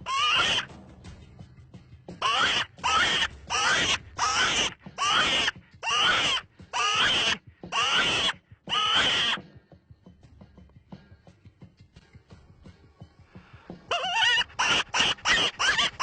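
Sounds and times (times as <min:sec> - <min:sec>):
animal squealing: 0:00.0 - 0:00.7, 0:02.2 - 0:09.4, 0:13.9 - 0:16.0.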